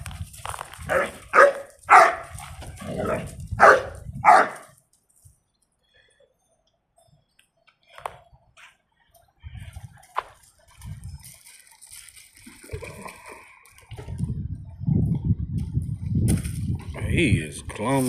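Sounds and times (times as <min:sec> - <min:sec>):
puppy barking: 0:00.9 - 0:02.3, 0:03.0 - 0:04.7.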